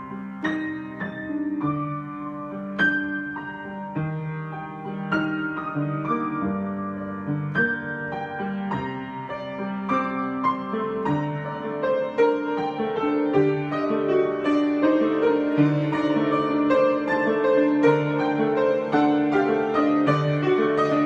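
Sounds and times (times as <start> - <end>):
solo piano chords and melody: 0.0 - 21.0.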